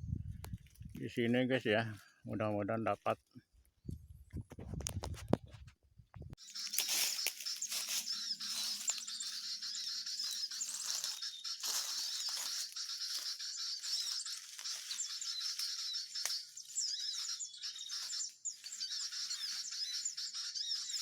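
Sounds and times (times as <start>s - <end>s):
small birds twittering: 6.4s - 21.0s.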